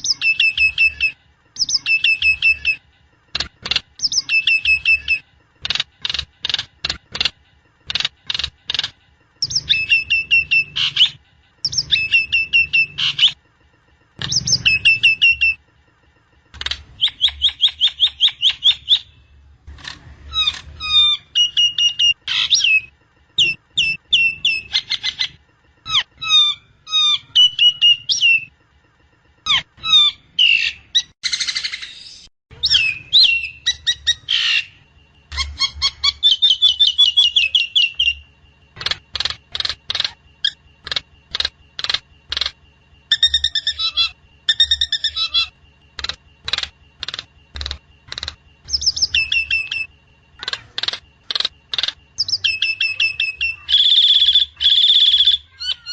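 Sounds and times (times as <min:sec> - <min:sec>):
starling singing: 0:00.0 - 0:02.8, 0:04.0 - 0:05.2, 0:09.4 - 0:13.4, 0:14.2 - 0:15.6, 0:16.9 - 0:19.2, 0:32.5 - 0:42.5, 0:43.1 - 0:55.9
sharp clicking bird notes: 0:01.6 - 0:12.3, 0:16.5 - 0:19.0, 0:38.8 - 0:43.8, 0:46.0 - 0:49.8, 0:50.4 - 0:55.8.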